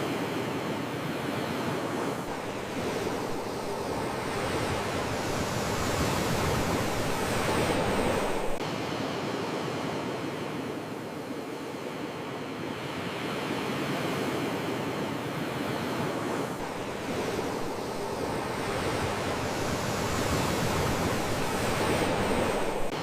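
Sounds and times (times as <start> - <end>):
ocean waves breaking: 0.3 - 8.6, 13.0 - 23.0.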